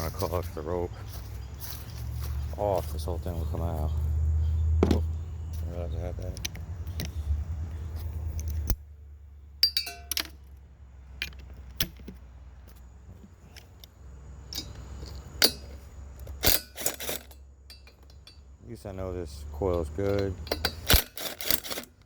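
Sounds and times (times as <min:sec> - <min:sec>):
metal tools clinking and clattering: 0:09.6 - 0:10.4, 0:14.5 - 0:18.5, 0:19.6 - 0:22.0.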